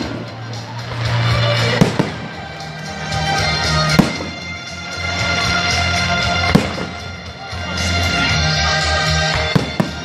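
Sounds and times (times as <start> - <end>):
fireworks bangs: 0.0 - 2.6, 3.3 - 4.6, 6.3 - 7.2, 9.2 - 10.0.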